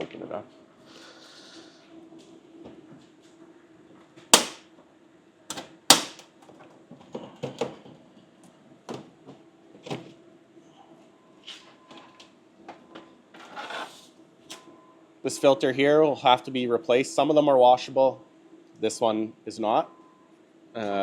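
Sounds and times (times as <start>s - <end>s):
latch snapping: 5.5s - 6.2s.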